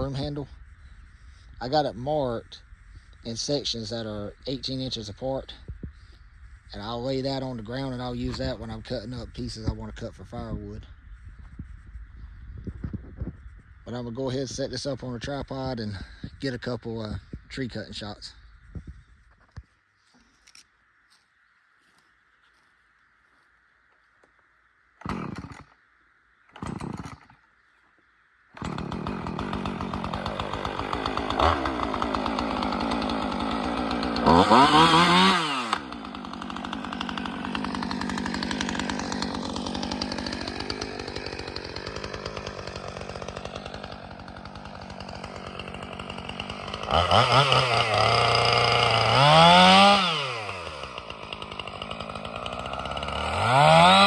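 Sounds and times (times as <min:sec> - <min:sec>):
chainsaw pull-start bursts: 0:25.0 - 0:25.7, 0:26.5 - 0:27.4, 0:28.6 - 0:54.0
chainsaw engine revving: 0:25.0 - 0:25.8, 0:26.5 - 0:27.4, 0:28.6 - 0:54.0.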